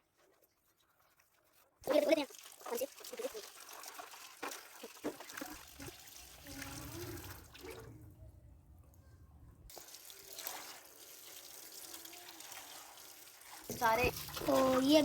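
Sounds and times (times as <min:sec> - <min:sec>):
tap water splashing on plastic boxes: 0:01.8 - 0:06.6, 0:09.7 - 0:15.0.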